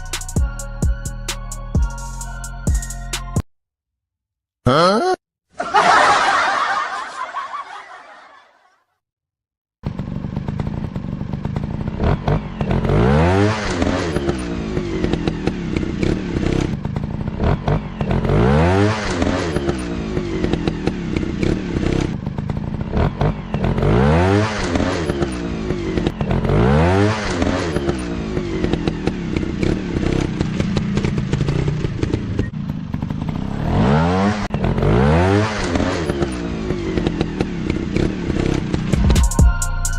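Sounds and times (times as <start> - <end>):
dirt bike engines revving: 10.0 - 39.0.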